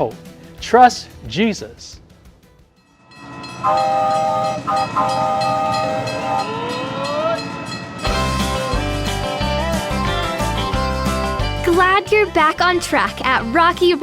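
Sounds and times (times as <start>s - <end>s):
train rail rumble: 3.4s - 9.0s
train horn chord: 3.5s - 6.8s
tone sliding upward: 3.6s - 6.5s.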